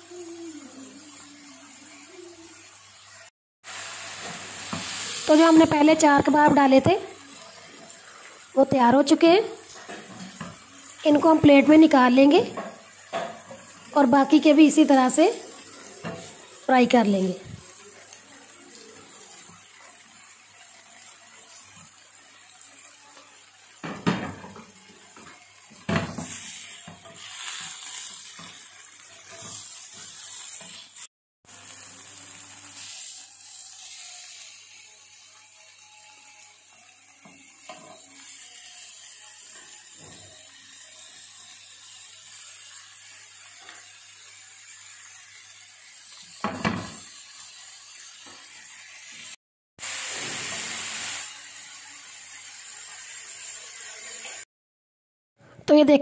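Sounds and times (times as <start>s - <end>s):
meat sizzling in a pan: 0.0s - 54.5s
spatula scraping a pan: 24.3s - 31.0s, 37.2s - 38.4s.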